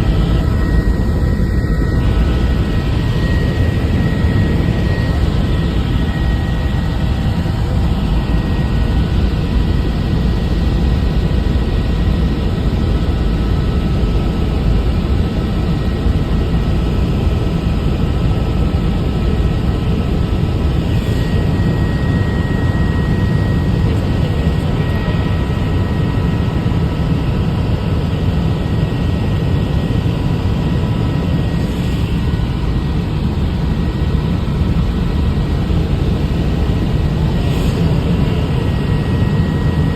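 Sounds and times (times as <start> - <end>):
faint whine: 0.0 - 39.9
helicopter rotor and engine: 0.0 - 39.9.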